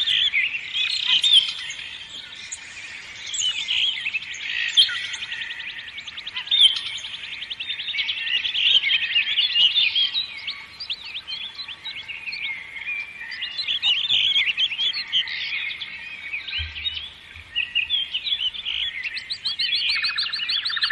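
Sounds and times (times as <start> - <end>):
songbirds chirping and singing: 0.0 - 20.9.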